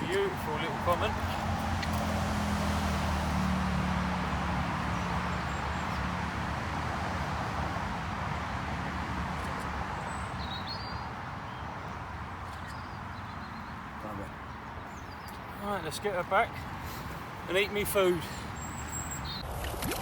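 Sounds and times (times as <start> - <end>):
low engine hum: 0.0 - 8.5
outdoor rushing noise: 0.0 - 10.2
bird chirps: 9.5 - 11.7, 12.4 - 13.8, 18.4 - 19.5.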